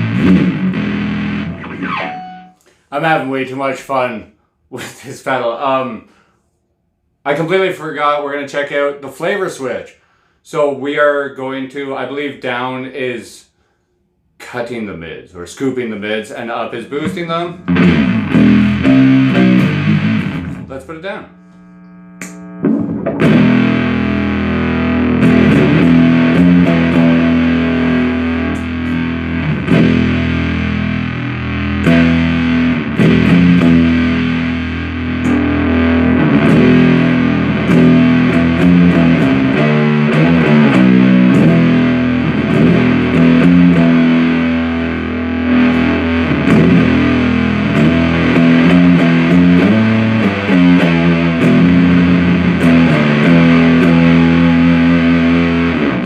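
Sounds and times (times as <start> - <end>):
fuzz guitar chords: 0.0 - 3.6, 16.5 - 56.0.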